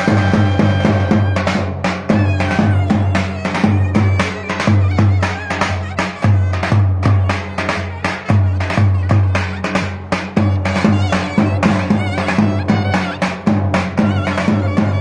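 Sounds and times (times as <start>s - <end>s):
clarinet melody: 0.0s - 6.7s, 10.4s - 15.0s.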